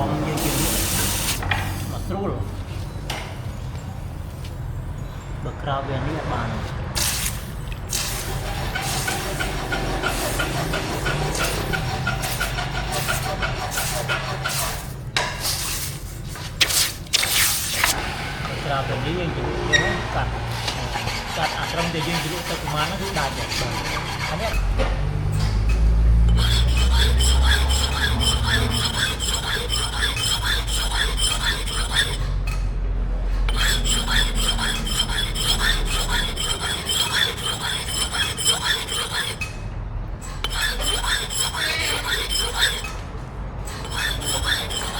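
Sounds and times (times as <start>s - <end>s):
metal filing rasping strokes: 7.2s - 18.0s, 19.7s - 24.6s, 25.6s - 32.6s, 33.4s - 39.6s, 40.2s - 44.9s.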